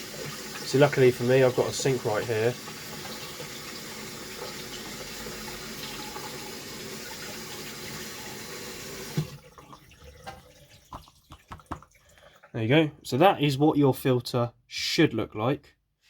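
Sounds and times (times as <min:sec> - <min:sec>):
tap water running: 0:00.0 - 0:12.6
faint drips and clicks: 0:10.2 - 0:12.6.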